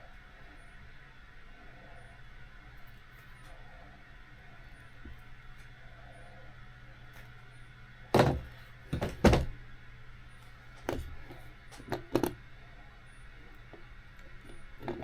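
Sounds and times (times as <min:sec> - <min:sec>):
faint low hum: 0:00.0 - 0:15.0
tools knocking on workbench: 0:08.2 - 0:09.5.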